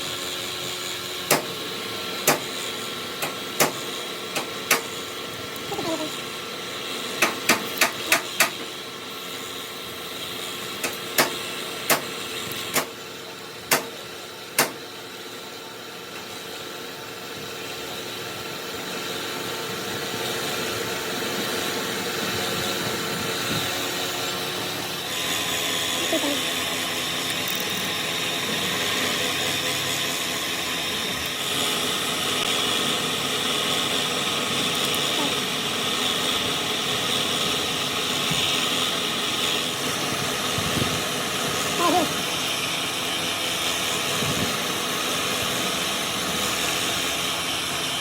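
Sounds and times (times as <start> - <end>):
steady machine hum: 0.0 - 48.0
hammer striking metal: 1.3 - 1.6, 2.2 - 2.5, 3.2 - 3.8, 13.7 - 14.0, 14.6 - 14.8.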